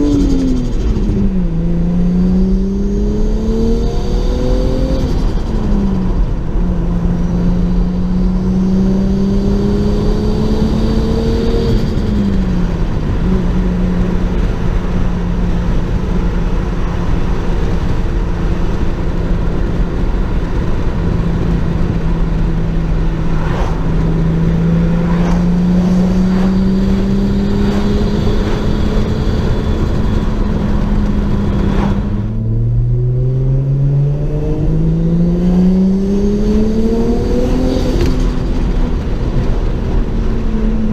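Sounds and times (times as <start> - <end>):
car engine running: 0.0 - 3.8, 10.2 - 40.9.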